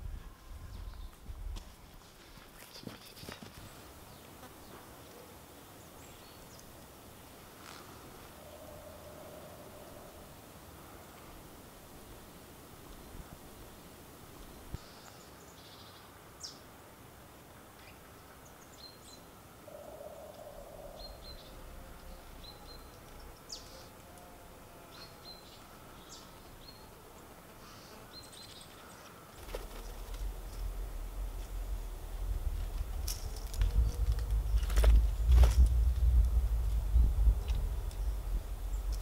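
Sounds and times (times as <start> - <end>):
faint steady hiss: 0.0 - 39.0
small birds chirping: 17.8 - 23.9, 24.9 - 32.0
low rumble: 30.1 - 39.0.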